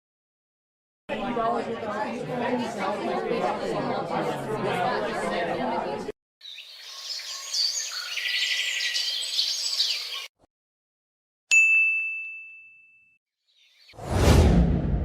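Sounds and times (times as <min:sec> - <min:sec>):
birds chirping: 0:06.4 - 0:10.3, 0:13.5 - 0:14.0.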